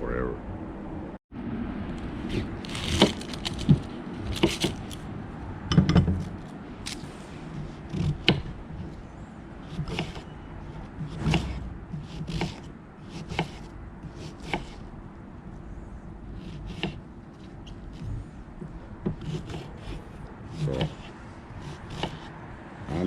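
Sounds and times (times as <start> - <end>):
knife chopping vegetables: 2.3 - 5.0, 9.6 - 10.3, 11.0 - 14.8, 16.4 - 22.3.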